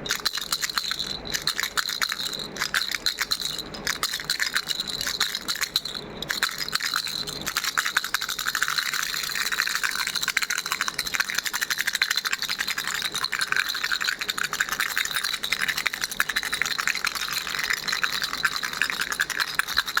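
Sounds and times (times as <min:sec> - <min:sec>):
baby rattle shaken: 0:00.0 - 0:20.0.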